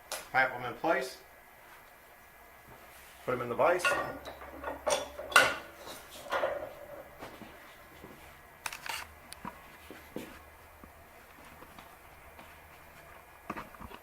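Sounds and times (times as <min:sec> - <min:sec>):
metal pieces clanking in a vise: 0:03.8 - 0:07.0.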